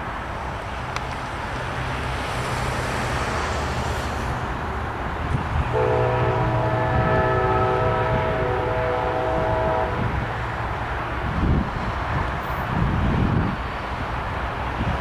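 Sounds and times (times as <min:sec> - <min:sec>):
locomotive engines rumbling: 0:00.0 - 0:15.0
locomotive air horn chord: 0:05.7 - 0:10.2.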